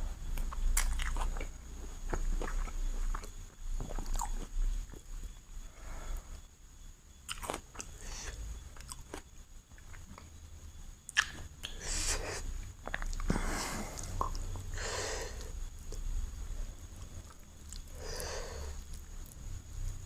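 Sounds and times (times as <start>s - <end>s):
close chewing and biting: 0.4s - 5.0s, 7.3s - 8.0s, 11.1s - 11.8s
wet mouth clicks and smacks: 11.1s - 11.8s.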